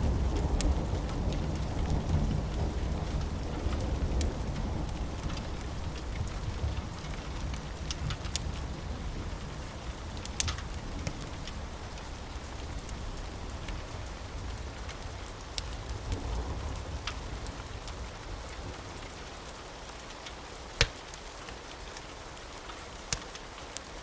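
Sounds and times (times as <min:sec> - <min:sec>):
distant thunder rumble: 0:00.0 - 0:19.1
sharp ticks of raindrops: 0:00.0 - 0:24.0
steady rain: 0:00.0 - 0:24.0.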